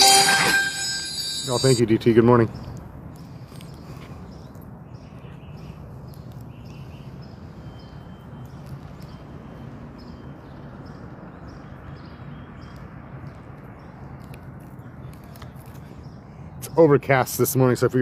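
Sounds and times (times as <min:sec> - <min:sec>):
low hum: 0:00.0 - 0:01.8.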